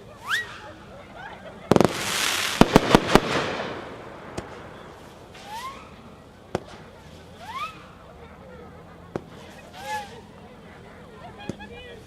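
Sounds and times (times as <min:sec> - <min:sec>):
firework volley rumble: 0:00.0 - 0:12.0
firework sharp cracks: 0:01.7 - 0:07.0, 0:09.1 - 0:09.4.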